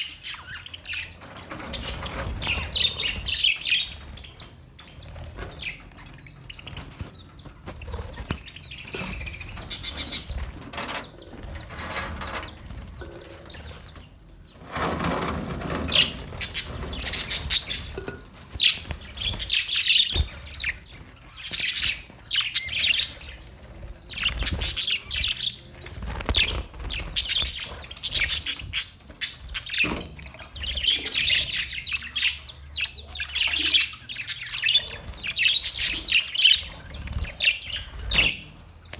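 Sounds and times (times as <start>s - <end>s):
budgerigars chirping: 0.0s - 38.9s
rustling flurry: 0.9s - 31.0s.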